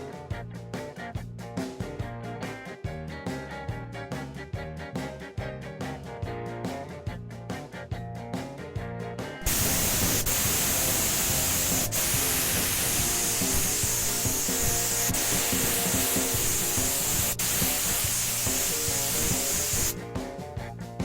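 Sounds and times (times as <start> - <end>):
paint spray hiss: 9.4 - 20.0.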